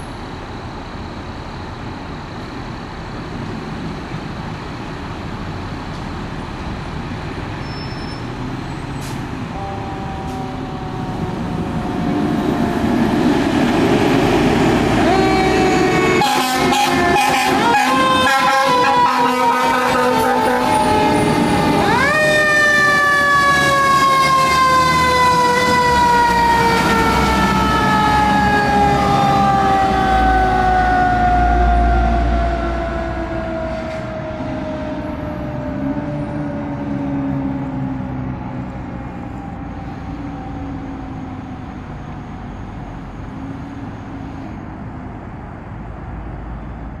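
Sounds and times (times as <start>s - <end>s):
heavy diesel engine: 0.0s - 47.0s
road noise: 0.0s - 47.0s
mechanical siren wailing: 9.4s - 42.5s.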